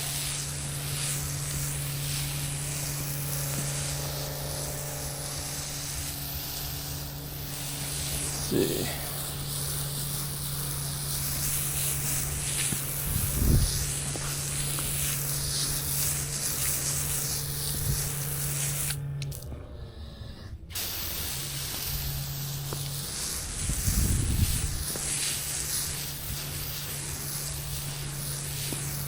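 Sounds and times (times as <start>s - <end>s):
sprayer hissing: 0.0s - 19.4s, 20.7s - 29.0s
low hum: 17.0s - 20.8s.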